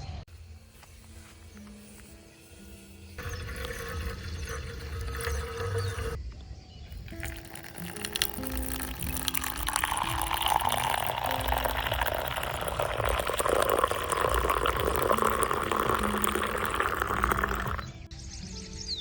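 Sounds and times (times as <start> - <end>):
soft background music: 0.3 - 19.0
liquid pouring into container: 3.2 - 6.2, 6.9 - 18.0.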